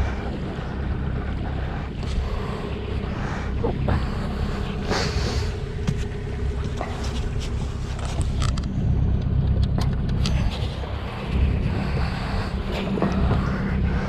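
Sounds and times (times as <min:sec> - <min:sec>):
boat engine running: 0:00.0 - 0:14.0
gear clicking and knocking: 0:00.0 - 0:14.0
wind rumble on microphone: 0:00.0 - 0:14.0.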